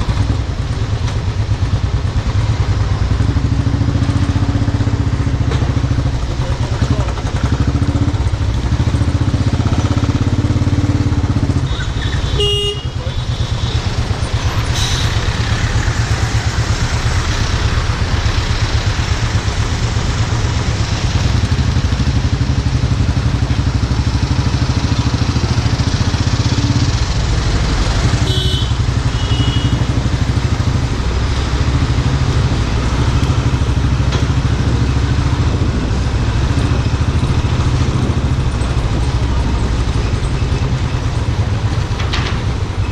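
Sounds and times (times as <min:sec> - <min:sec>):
motorcycle engine running: 0:00.0 - 0:14.6, 0:15.2 - 0:42.9
vehicle horn honks: 0:11.7 - 0:13.0, 0:28.2 - 0:29.9.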